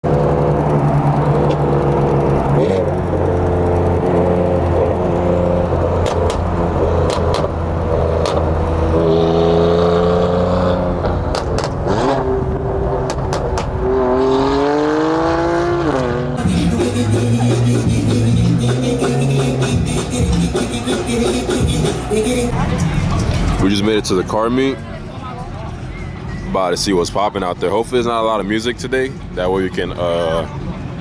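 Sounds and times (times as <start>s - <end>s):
car engine revving: 0.0s - 31.0s
sharp cracks: 11.2s - 12.2s.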